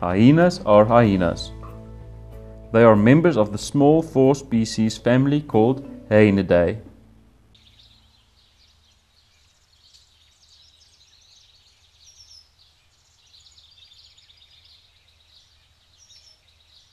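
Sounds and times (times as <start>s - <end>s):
low steady hum: 0.0s - 8.6s
small birds chirping: 7.5s - 16.9s.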